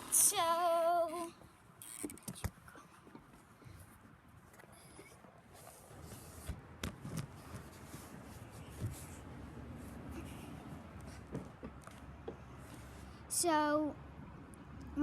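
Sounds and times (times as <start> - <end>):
rustling handling noise: 3.2 - 9.4.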